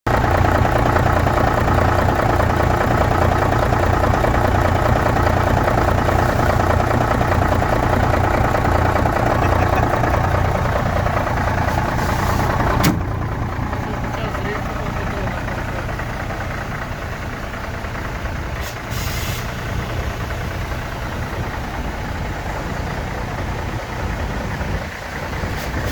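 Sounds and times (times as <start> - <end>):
diesel truck engine idling: 0.1 - 25.9.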